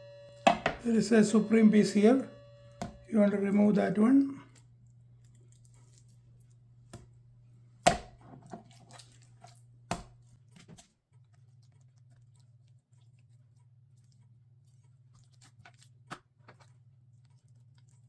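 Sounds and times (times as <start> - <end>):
low steady hum: 0.0 - 10.8
knife knocking on cutting board: 0.5 - 0.8
meat cutting and tearing: 4.6 - 18.0.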